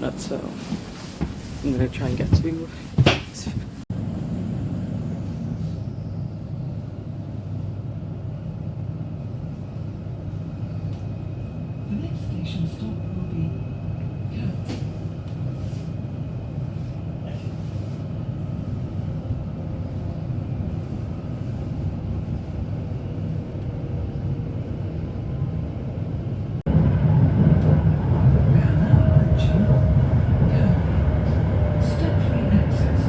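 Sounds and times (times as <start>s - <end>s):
electric train rumble: 3.9s - 33.0s.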